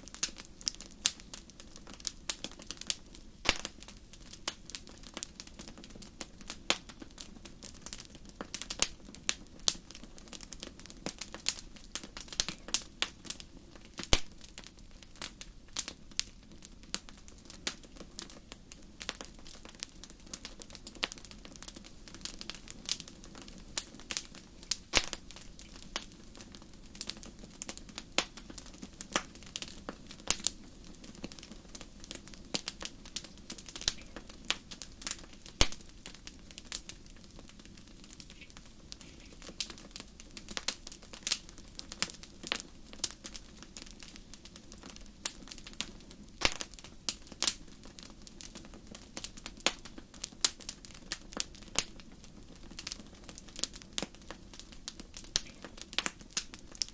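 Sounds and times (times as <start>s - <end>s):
campfire crackling: 0.0s - 56.9s.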